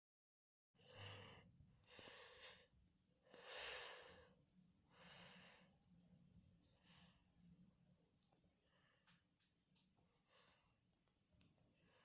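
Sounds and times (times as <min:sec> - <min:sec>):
soft breaths close to microphone: 0:00.8 - 0:06.0.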